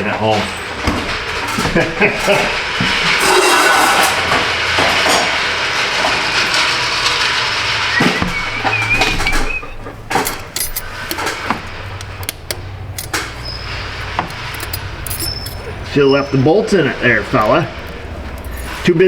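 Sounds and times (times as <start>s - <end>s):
metal tools clinking: 8.2s - 19.0s
ratchet wrench clicking: 10.2s - 15.7s.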